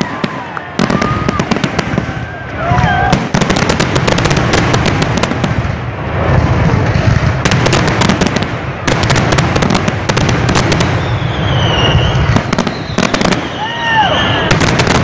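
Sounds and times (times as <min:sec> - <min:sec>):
fireworks bangs and crackles: 0:00.0 - 0:15.0
low rumble: 0:03.8 - 0:12.5.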